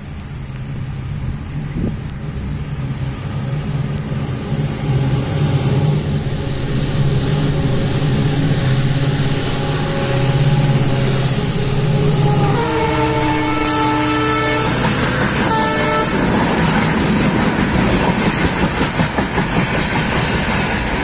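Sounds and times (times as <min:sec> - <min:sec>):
locomotive rumble: 0:00.0 - 0:21.0
train horn: 0:05.8 - 0:16.9.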